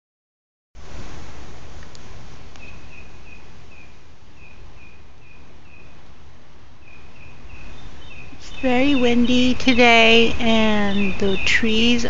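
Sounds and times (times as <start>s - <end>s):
wind buffeting microphone: 7.5s - 12.0s.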